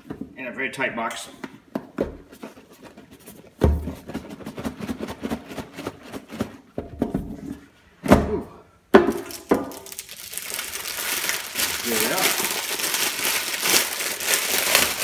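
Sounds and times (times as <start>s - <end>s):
heavy thunk of box: 3.6s - 4.2s.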